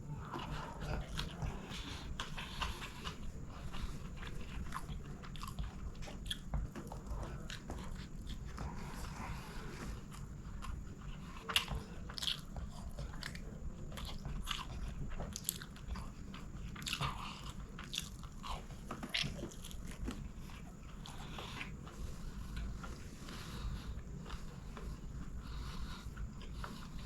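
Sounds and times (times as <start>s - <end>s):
low steady hum: 0.0s - 27.0s
chewing with wet mouth clicks: 0.1s - 27.0s.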